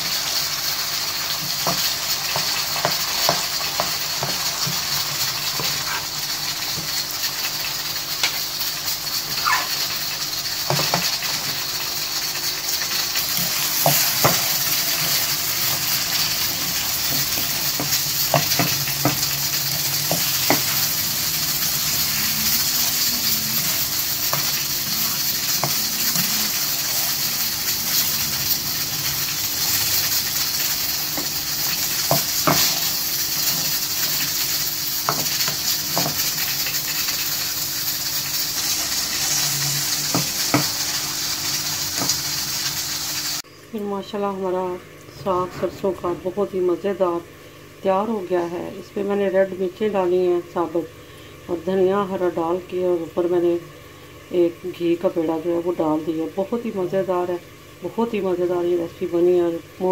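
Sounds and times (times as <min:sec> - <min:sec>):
food sizzling in a pan: 0:00.0 - 0:59.9
spoon scraping against pan: 0:29.1 - 0:37.4.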